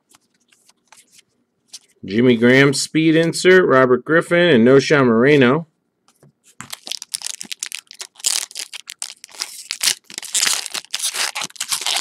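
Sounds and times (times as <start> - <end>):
wrapper crinkling and tearing: 6.6 - 12.0.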